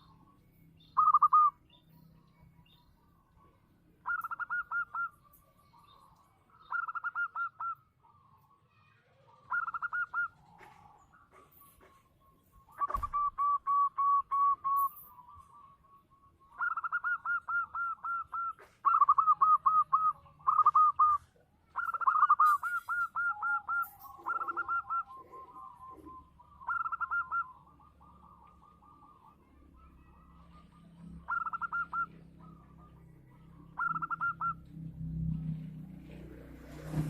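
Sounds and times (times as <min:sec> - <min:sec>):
lower-pitched bird call: 0:00.0 - 0:02.0, 0:02.6 - 0:34.8
dove cooing: 0:01.0 - 0:01.6, 0:04.0 - 0:05.2, 0:06.6 - 0:08.2, 0:09.3 - 0:11.4, 0:12.7 - 0:34.7.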